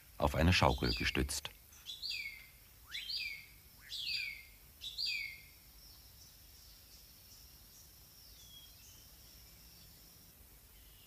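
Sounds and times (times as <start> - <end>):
bird whistling call: 1.8 - 5.5.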